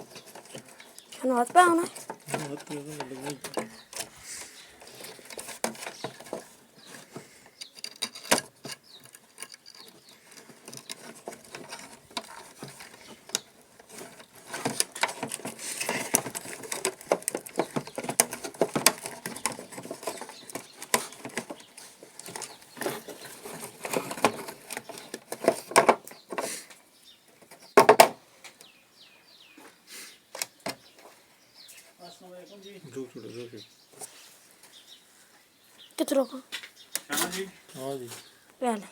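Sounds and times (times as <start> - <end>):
tools clicking and scraping on wiring: 0.0 - 26.7.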